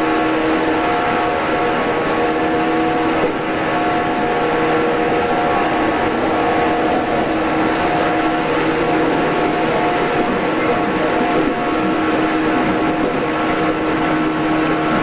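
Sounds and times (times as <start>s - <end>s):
train rumbling: 0.0s - 15.0s
whine of motors and gears: 0.0s - 15.0s.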